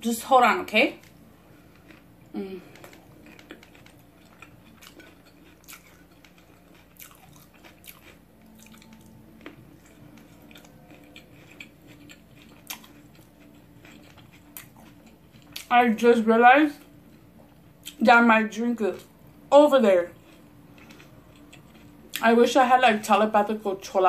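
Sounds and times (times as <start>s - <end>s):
person chewing: 1.0s - 15.7s, 20.1s - 22.2s.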